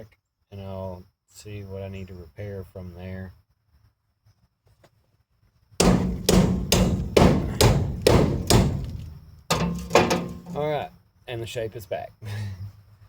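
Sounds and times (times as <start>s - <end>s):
hammer striking steel: 5.8s - 10.8s.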